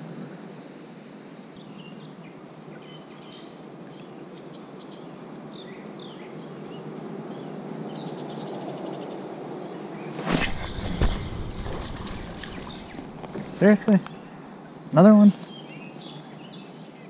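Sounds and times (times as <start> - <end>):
steady background hiss: 0.0 - 17.0
birds chirping and calling: 9.9 - 17.0.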